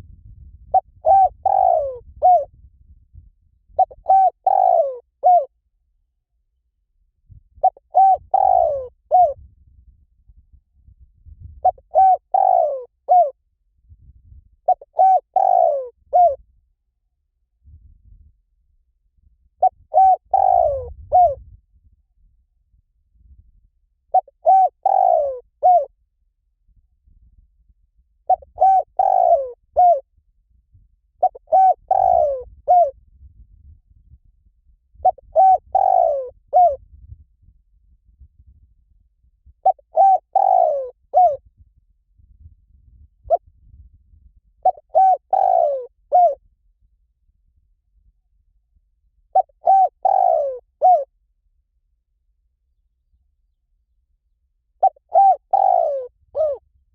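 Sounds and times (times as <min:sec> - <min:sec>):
dove cooing: 0:00.7 - 0:02.6, 0:03.8 - 0:05.5, 0:07.6 - 0:09.4, 0:11.6 - 0:13.4, 0:14.7 - 0:16.4, 0:19.6 - 0:21.4, 0:24.1 - 0:25.9, 0:28.3 - 0:30.0, 0:31.2 - 0:33.0, 0:35.0 - 0:36.8, 0:39.6 - 0:41.4, 0:44.6 - 0:46.4, 0:49.3 - 0:51.1, 0:54.8 - 0:56.6.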